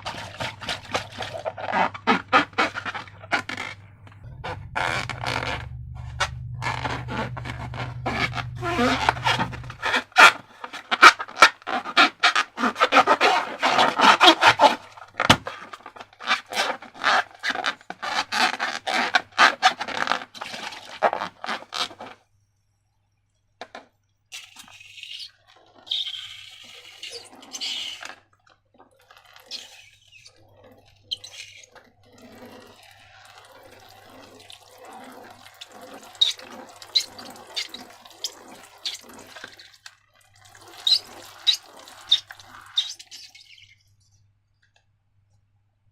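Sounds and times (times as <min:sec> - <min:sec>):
slime squishing: 0:00.0 - 0:22.2, 0:33.6 - 0:43.8.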